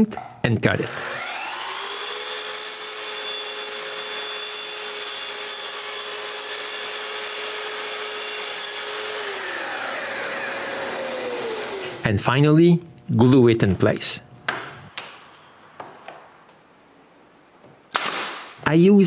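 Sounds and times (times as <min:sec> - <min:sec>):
power saw cutting wood: 0:00.8 - 0:12.1.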